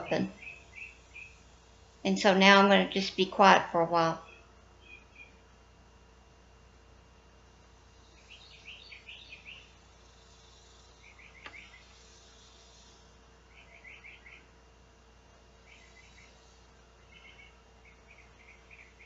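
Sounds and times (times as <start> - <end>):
faint rapid chirping: 0.0 - 2.1, 7.7 - 14.7, 15.4 - 19.0
low steady hum: 0.0 - 19.0.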